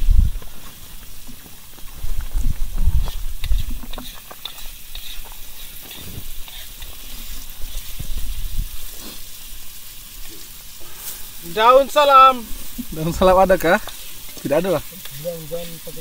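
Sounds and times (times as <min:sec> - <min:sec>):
food sizzling in a wok: 0:00.0 - 0:16.0
metal spoon scraping a pan: 0:03.0 - 0:09.4.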